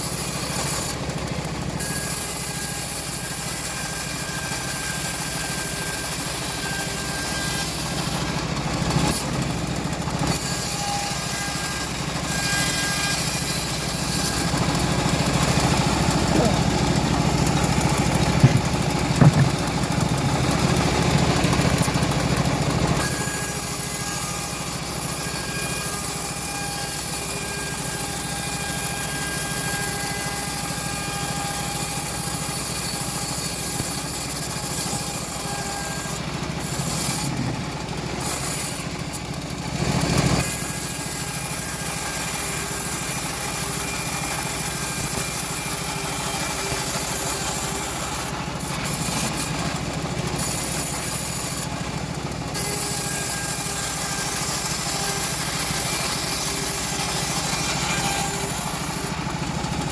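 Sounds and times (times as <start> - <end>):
saw blade cutting wood: 0.0 - 59.9
sawmill engine running: 0.0 - 59.9
sharp knock: 18.3 - 20.3.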